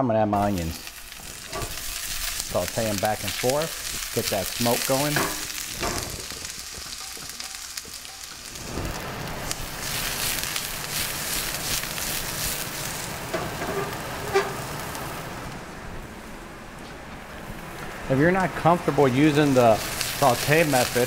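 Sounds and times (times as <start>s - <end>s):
onions sizzling in oil: 0.4s - 15.5s, 18.5s - 21.0s
wok tossed: 3.4s - 14.6s.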